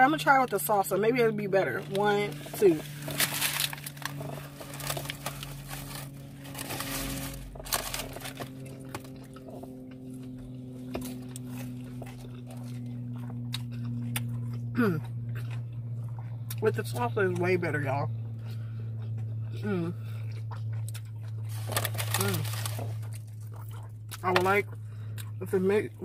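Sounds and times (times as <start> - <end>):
low hum: 0.0 - 26.0
paper wrapper crinkling: 1.8 - 9.4, 21.5 - 23.4
person chewing: 1.8 - 17.5, 18.1 - 25.4
person humming mm: 14.8 - 15.2.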